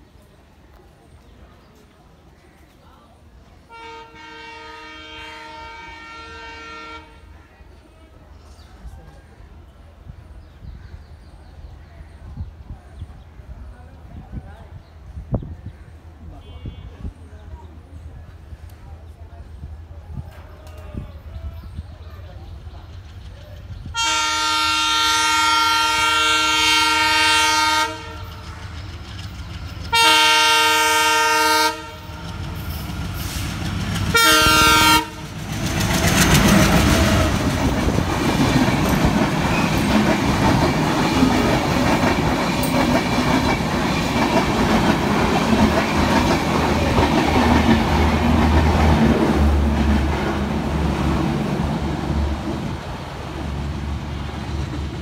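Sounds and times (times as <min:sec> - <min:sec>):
train coaches rumbling past: 0:00.0 - 0:55.0
locomotive air horn blasts: 0:03.7 - 0:07.3, 0:24.0 - 0:28.4, 0:29.9 - 0:32.2, 0:34.1 - 0:35.3
wheels clacking over rail joints: 0:35.2 - 0:51.5.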